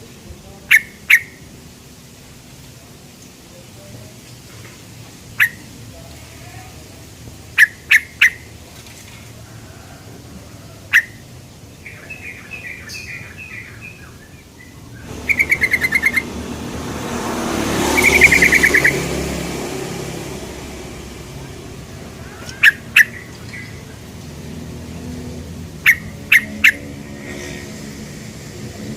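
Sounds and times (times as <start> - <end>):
bulbul calling: 0.7 - 1.5, 5.4 - 5.7, 7.5 - 8.6, 10.8 - 16.4, 17.8 - 19.1, 22.2 - 24.1, 25.8 - 27.6
passing vehicle: 14.7 - 28.9.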